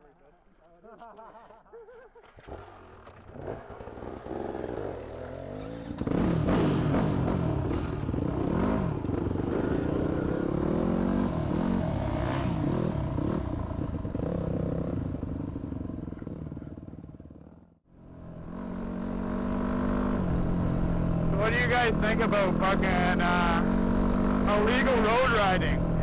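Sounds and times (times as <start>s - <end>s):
dirt bike engine revving: 3.3s - 15.0s, 18.0s - 26.0s.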